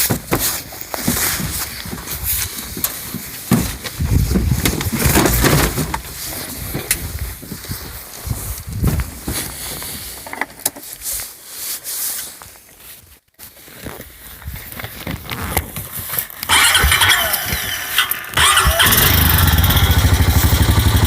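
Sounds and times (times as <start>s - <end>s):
knocks and clunks: 3.5s - 6.0s
quad engine running loudly: 16.5s - 21.0s.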